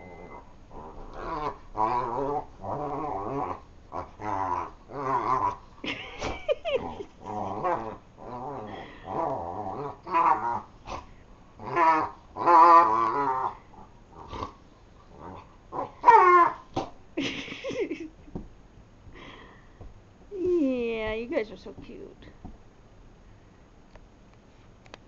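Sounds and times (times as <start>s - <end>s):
dog whining: 0.0s - 5.6s, 6.2s - 14.5s, 15.1s - 16.7s
dogs growling in play: 0.0s - 18.0s.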